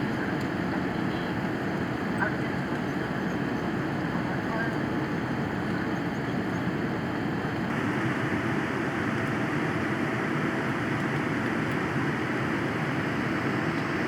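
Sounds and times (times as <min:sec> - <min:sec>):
airliner cabin noise: 0:07.6 - 0:14.0.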